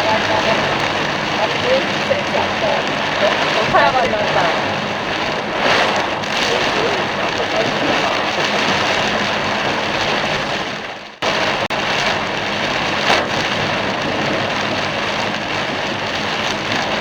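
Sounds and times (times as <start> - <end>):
tyres hissing through water: 0.0 - 11.7
heavy rain on a car: 0.0 - 17.0.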